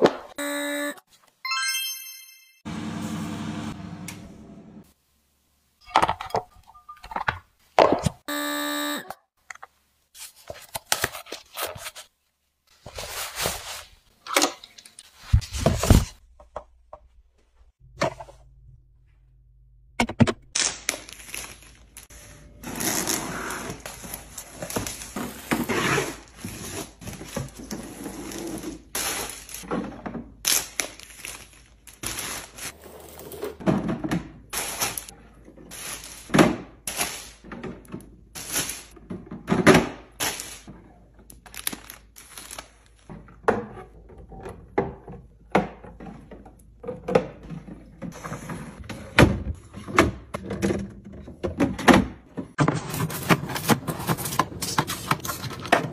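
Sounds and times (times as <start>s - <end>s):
rustling handling noise: 10.1s - 14.2s, 52.7s - 55.9s.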